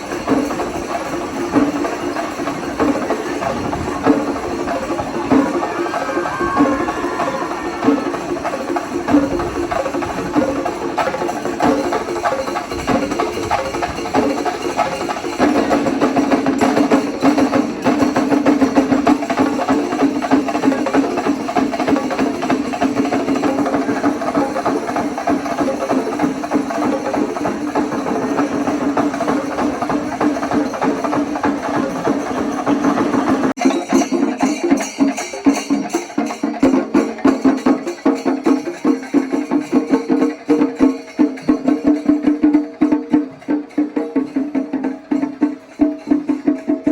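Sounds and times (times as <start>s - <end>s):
percussion ensemble drumming: 0.0s - 46.9s.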